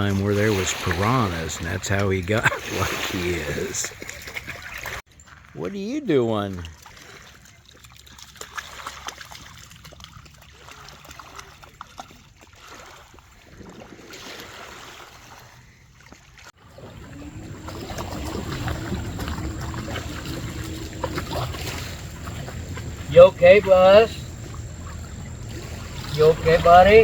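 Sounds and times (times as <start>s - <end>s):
small splashes: 0.0s - 5.6s, 6.3s - 27.0s
water lapping at shoreline: 0.0s - 27.0s
low rumble: 16.7s - 23.1s
faint wavering hum: 16.7s - 27.0s.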